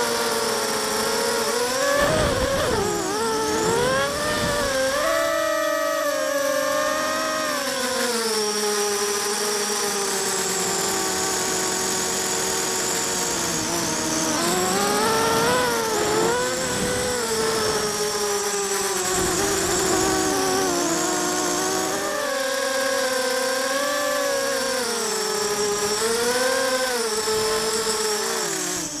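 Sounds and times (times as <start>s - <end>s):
quadcopter motors buzzing: 0.0s - 29.0s.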